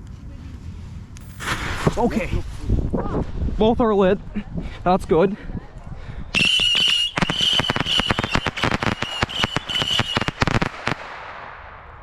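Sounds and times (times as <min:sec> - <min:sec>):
firework cracks and pops: 0:01.2 - 0:02.6, 0:06.4 - 0:12.0
firework whistle: 0:06.3 - 0:11.0.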